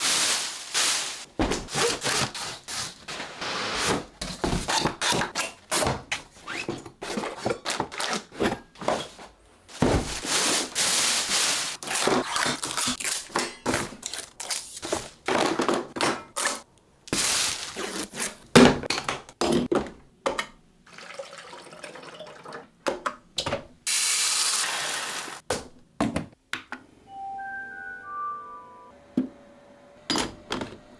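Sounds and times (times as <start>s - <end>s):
cardboard box rustling: 6.7s - 12.2s.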